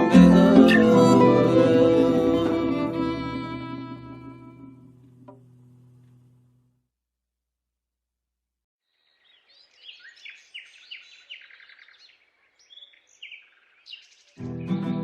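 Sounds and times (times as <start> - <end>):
songbird chirps and trills: 8.9 - 15.0.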